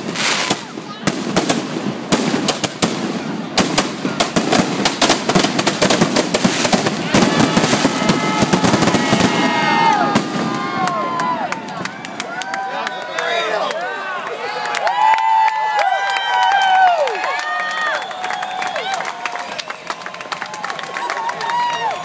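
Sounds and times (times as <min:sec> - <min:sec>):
whistling fireworks: 0:00.0 - 0:11.4, 0:17.6 - 0:20.3
fireworks crackling and banging: 0:00.0 - 0:12.4.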